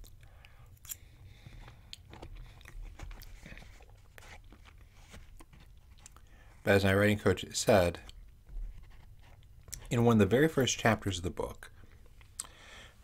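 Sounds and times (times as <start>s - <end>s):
man chewing: 0.0s - 4.8s.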